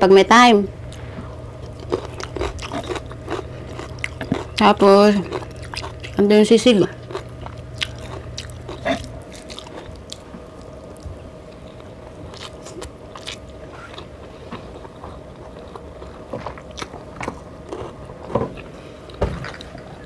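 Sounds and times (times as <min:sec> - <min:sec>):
faint steady hum: 0:00.0 - 0:20.0
person chewing food: 0:00.9 - 0:06.2, 0:06.8 - 0:19.9.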